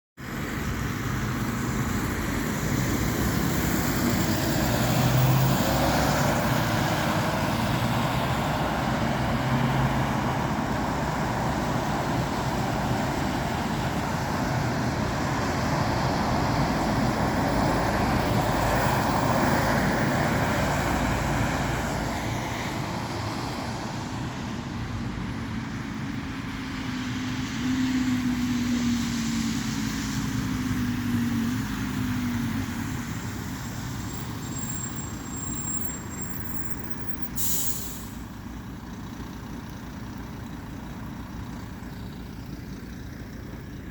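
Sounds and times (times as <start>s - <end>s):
road traffic passing: 0.2s - 43.9s
engine revving pulling away: 2.9s - 22.5s.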